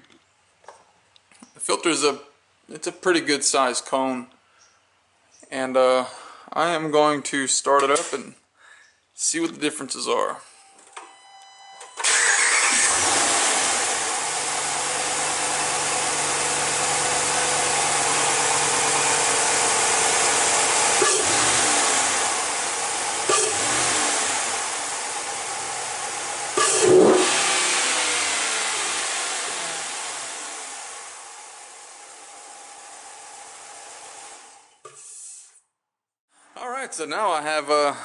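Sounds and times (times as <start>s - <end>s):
engine revving bursts: 12.0s - 32.0s
engine idling with intake hiss: 12.0s - 35.5s.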